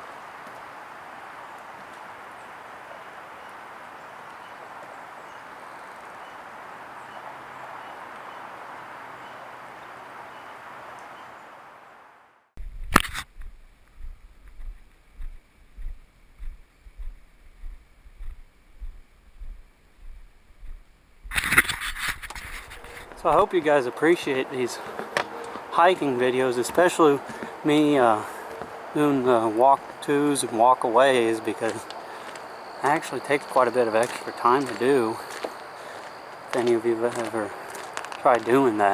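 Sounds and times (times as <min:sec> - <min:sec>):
footsteps on trail: 0:00.0 - 0:11.3, 0:13.0 - 0:38.9
creek water flowing: 0:00.0 - 0:12.4, 0:22.4 - 0:38.9.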